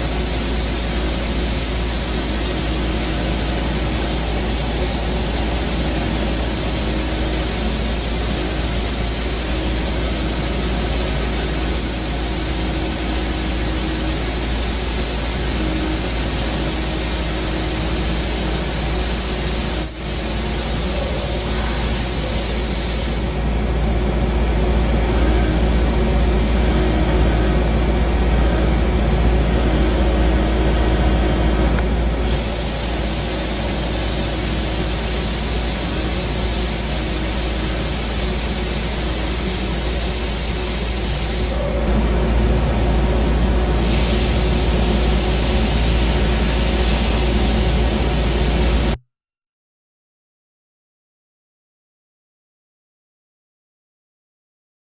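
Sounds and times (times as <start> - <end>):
hiss of cutting and coolant spray: 0.0 - 23.7, 32.2 - 41.8, 43.2 - 49.0
low machine hum: 0.0 - 49.0.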